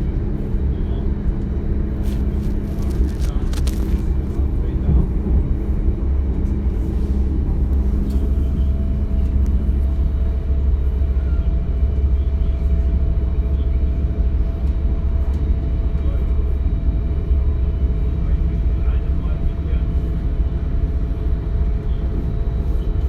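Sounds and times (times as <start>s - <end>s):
train running gear rumbling: 0.0s - 17.2s.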